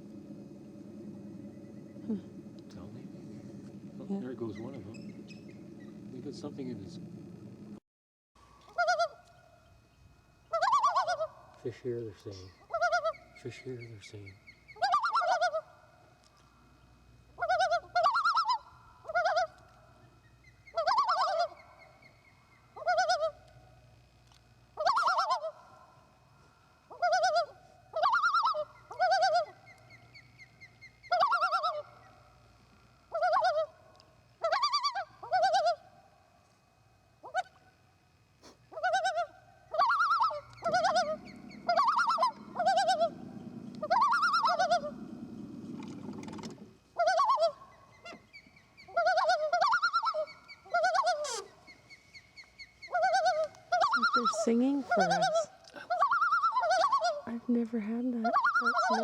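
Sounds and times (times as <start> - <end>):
loons calling: 0.0 - 7.7, 8.6 - 23.8, 24.6 - 36.3, 37.2 - 37.8, 38.4 - 59.0
low rumble: 0.0 - 7.8, 40.5 - 46.4.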